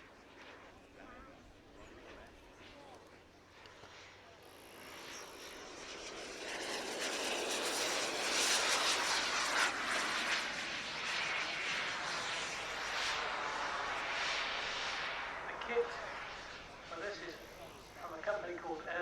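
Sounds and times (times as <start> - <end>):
jet engine rushing hiss: 4.5 - 18.6.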